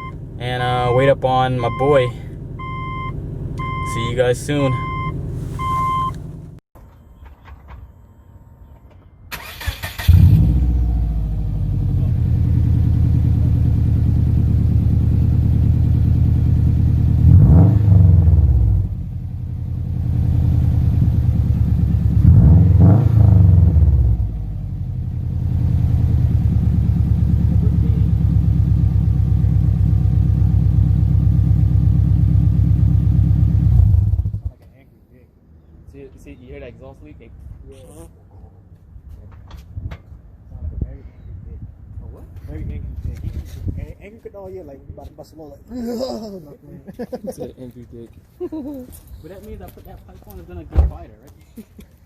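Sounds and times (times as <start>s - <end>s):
car engine idling and revving: 0.0s - 6.6s, 9.6s - 34.7s.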